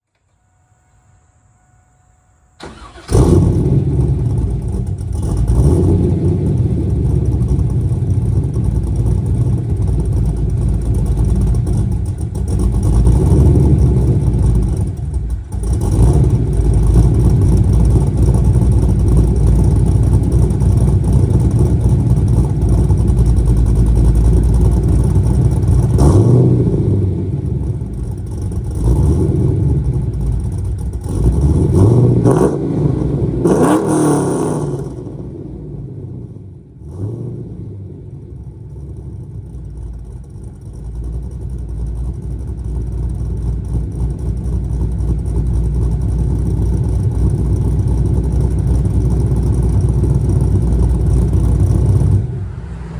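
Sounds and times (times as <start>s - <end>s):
car engine cranking: 2.6s - 52.6s
loud uneven engine idle: 3.7s - 26.0s, 26.6s - 31.4s, 38.1s - 52.9s.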